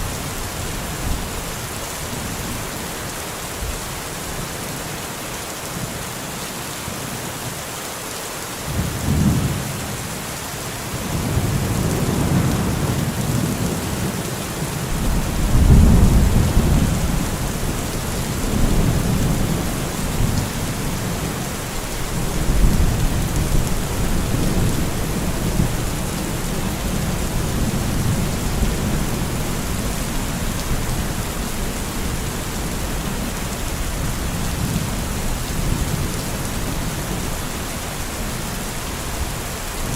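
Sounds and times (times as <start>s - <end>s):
steady rain: 0.0s - 39.9s
thunder rumbling: 14.9s - 21.4s.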